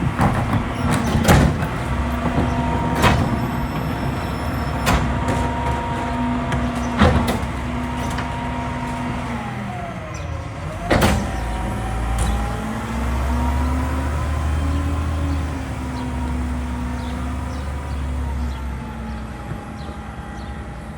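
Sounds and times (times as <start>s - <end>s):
sharp metallic bangs: 0.0s - 13.4s
garbage truck diesel engine: 0.0s - 20.9s.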